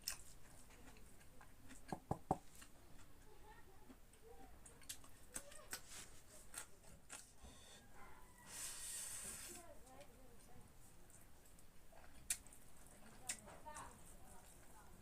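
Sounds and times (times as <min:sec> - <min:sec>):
wet chewing and lip smacks: 0:00.0 - 0:03.2, 0:04.6 - 0:07.4, 0:11.1 - 0:14.8.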